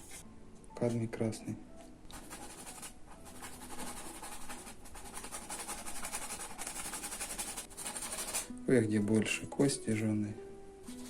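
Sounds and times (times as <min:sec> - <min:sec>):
bristle brush scratchy strokes: 0:00.0 - 0:00.2, 0:02.1 - 0:08.5.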